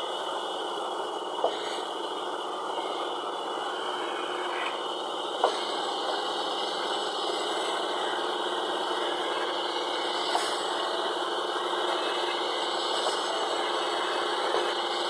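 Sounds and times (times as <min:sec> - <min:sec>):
sawmill machinery whirring: 0:00.0 - 0:15.0.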